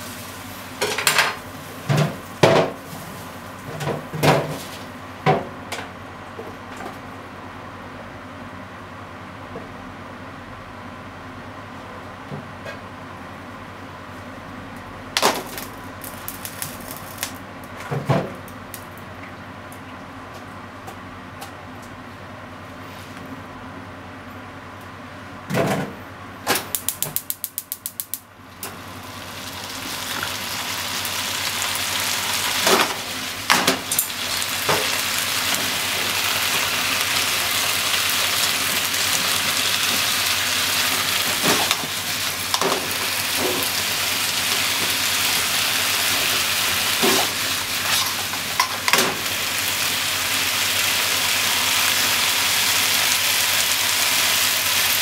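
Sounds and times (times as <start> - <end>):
food sizzling in a frying pan: 0.0 - 3.7, 15.4 - 17.4, 28.6 - 55.0.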